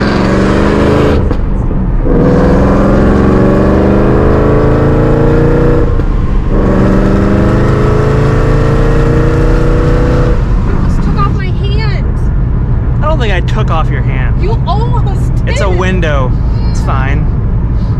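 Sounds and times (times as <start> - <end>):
car accelerating through gears: 0.0 - 1.3, 2.0 - 10.7.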